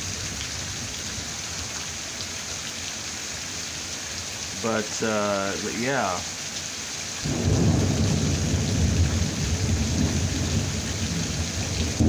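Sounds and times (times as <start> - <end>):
heavy rain: 0.0 - 12.0
thunder rumbling: 7.2 - 12.0.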